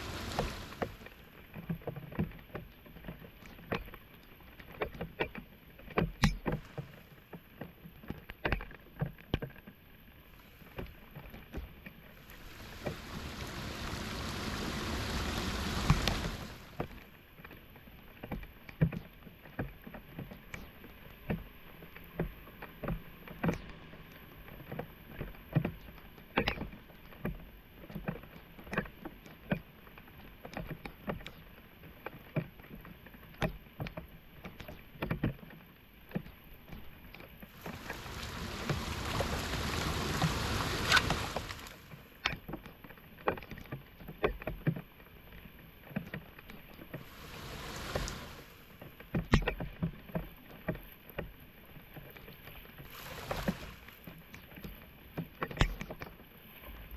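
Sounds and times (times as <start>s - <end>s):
rushing water: 0.0s - 1.5s, 10.3s - 17.1s, 37.5s - 42.3s, 46.8s - 49.2s, 52.6s - 55.0s
floodwater splashing and sloshing: 0.0s - 3.3s, 10.1s - 17.2s, 37.5s - 42.3s, 46.8s - 49.3s, 52.4s - 55.7s.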